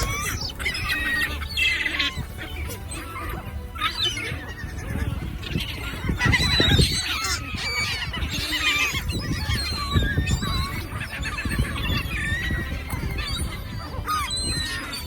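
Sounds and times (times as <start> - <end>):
flock of birds squawking: 0.0 - 15.0
low rumbling noise: 0.0 - 15.0.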